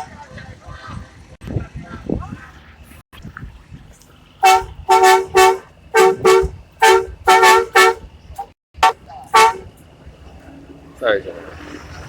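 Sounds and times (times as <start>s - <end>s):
vehicle horn honking rhythmically: 4.4s - 8.1s, 8.8s - 9.7s.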